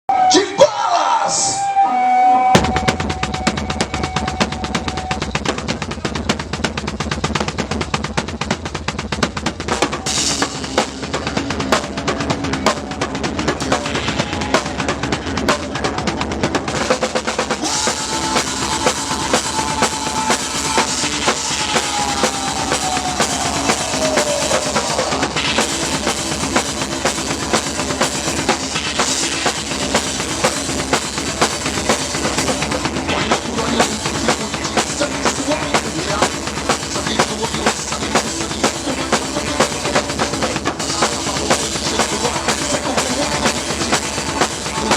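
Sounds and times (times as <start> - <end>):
live metal band playing: 1.3 - 44.9
high note sliding down: 1.4 - 5.4
fast kick drum and snare: 2.6 - 44.9.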